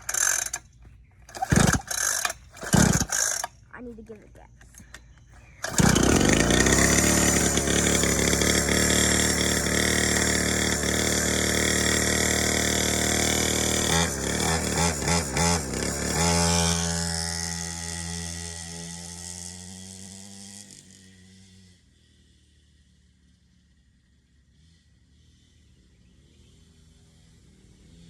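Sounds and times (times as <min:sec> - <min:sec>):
dirt bike engine revving: 0:00.0 - 0:00.6, 0:01.3 - 0:03.6, 0:05.4 - 0:22.6.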